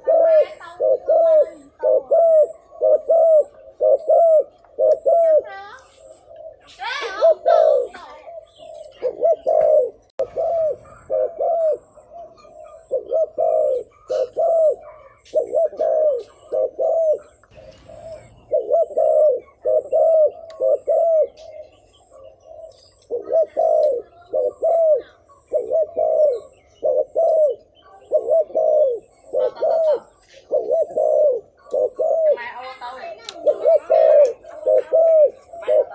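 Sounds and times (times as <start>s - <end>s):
dove cooing: 0.0s - 35.9s.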